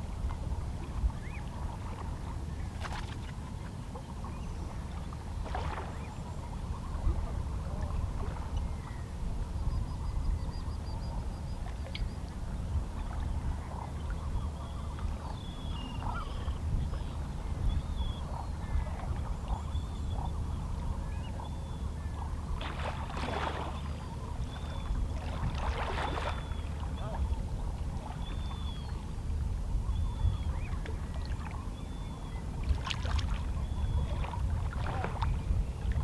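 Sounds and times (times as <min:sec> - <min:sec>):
water splashes: 0:05.4 - 0:06.1, 0:22.6 - 0:23.9, 0:25.2 - 0:27.1, 0:32.6 - 0:36.0
faint seabird calls: 0:12.9 - 0:22.6, 0:23.2 - 0:36.0.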